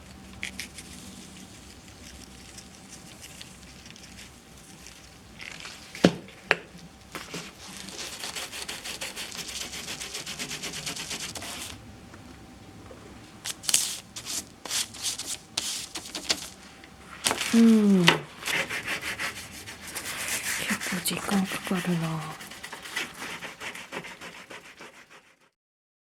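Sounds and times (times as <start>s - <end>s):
scrubbing greasy fan part: 13.4s - 25.2s.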